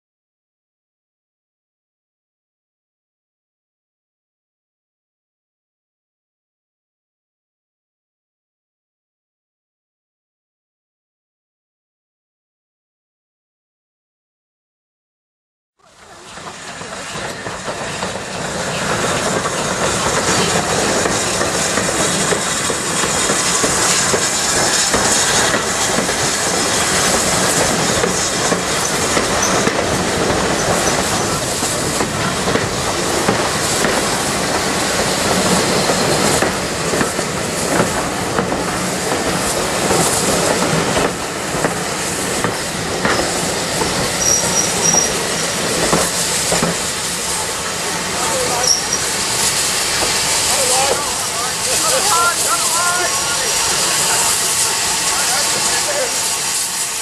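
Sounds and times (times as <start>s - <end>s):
train wheels clacking over rail joints: 16.2s - 57.0s
wheel squeal: 44.1s - 45.4s, 48.4s - 49.2s.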